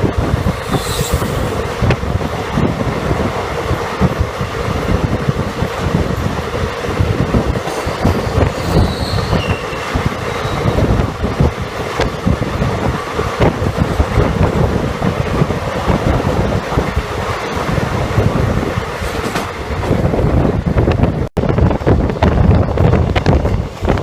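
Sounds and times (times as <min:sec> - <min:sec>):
train coach rumbling on track: 0:00.0 - 0:24.0
wheels clattering over rails: 0:00.1 - 0:20.2
high wheel squeal: 0:00.6 - 0:01.6, 0:07.8 - 0:11.0.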